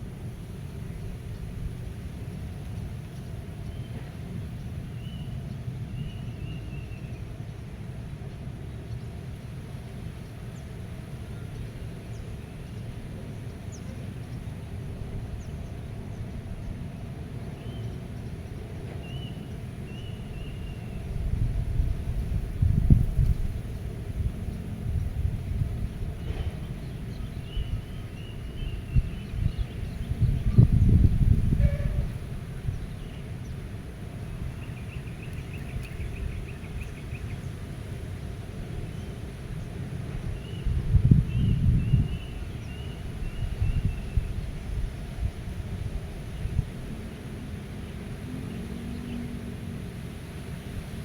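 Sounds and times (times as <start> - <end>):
wind rumbling on microphone: 20.0 - 51.0.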